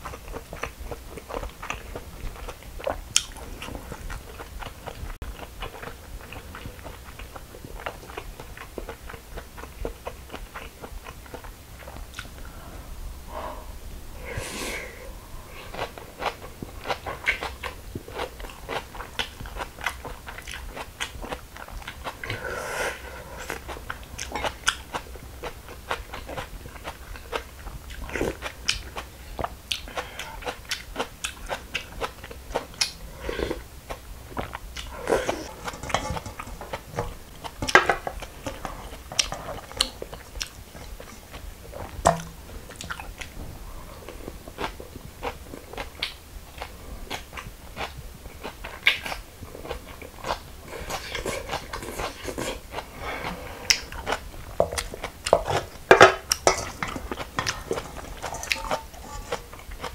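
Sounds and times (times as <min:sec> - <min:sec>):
crunchy chewing: 0:15.5 - 0:22.4, 0:23.0 - 0:43.4, 0:44.0 - 0:59.9.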